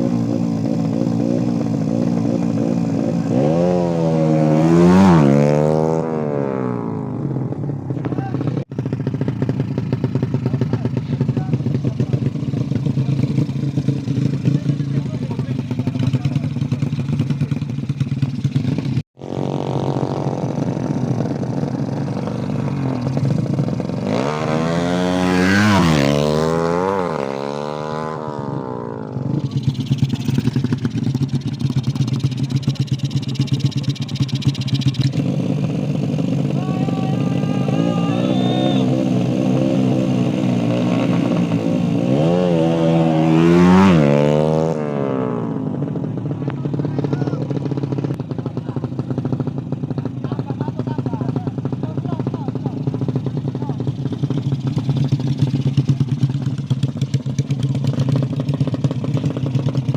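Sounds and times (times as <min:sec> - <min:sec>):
small motorcycle engine revving: 0:00.0 - 0:59.9.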